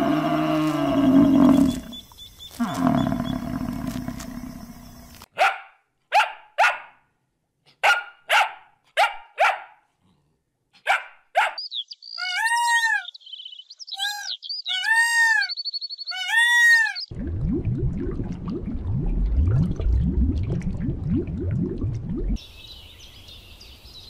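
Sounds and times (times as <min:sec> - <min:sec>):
small dog barking: 0:05.3 - 0:07.0, 0:07.8 - 0:09.8, 0:10.8 - 0:11.6
peacock calling: 0:11.4 - 0:17.1
high chirping: 0:11.5 - 0:17.1.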